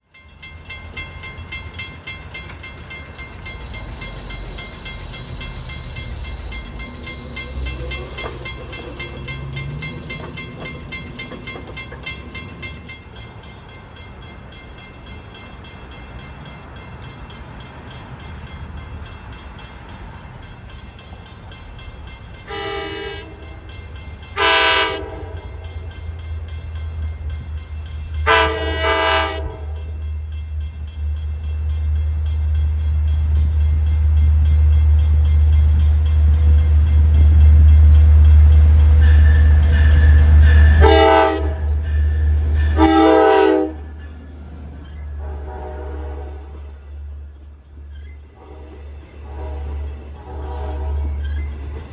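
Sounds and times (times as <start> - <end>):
locomotive engine rumble: 0.2 - 51.9
train horn blasts: 22.5 - 23.7, 24.4 - 25.6, 28.2 - 29.8, 39.0 - 41.8, 42.6 - 43.9, 45.2 - 46.8, 48.3 - 51.3.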